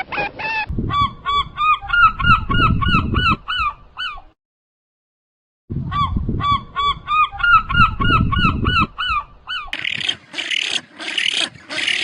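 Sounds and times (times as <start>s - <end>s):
goose honking: 9.8s - 12.0s.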